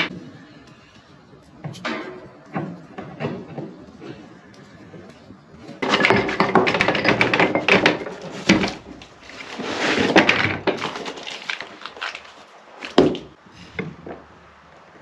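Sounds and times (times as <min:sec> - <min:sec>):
knocks and clatter: 0:01.6 - 0:04.3, 0:05.8 - 0:11.7
scraping or rustling: 0:01.7 - 0:14.1.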